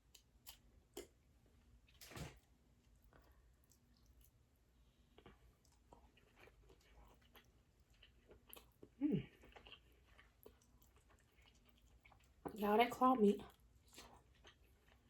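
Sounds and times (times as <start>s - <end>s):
close-up chewing: 0.0s - 1.2s, 1.8s - 12.6s, 13.4s - 15.0s
person humming mm: 9.0s - 9.3s.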